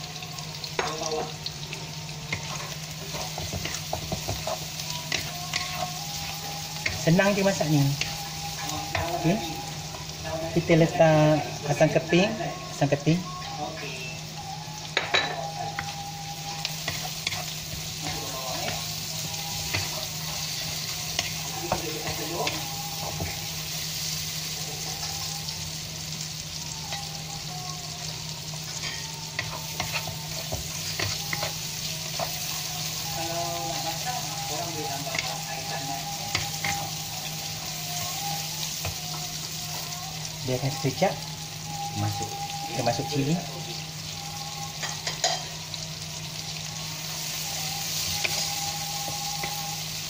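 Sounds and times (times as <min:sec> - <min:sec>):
prawns and onions sizzling: 0:00.0 - 0:50.0.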